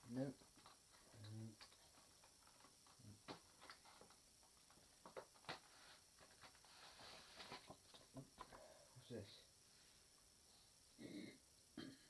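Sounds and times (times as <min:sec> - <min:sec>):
soft rustle: 0:03.7 - 0:08.1.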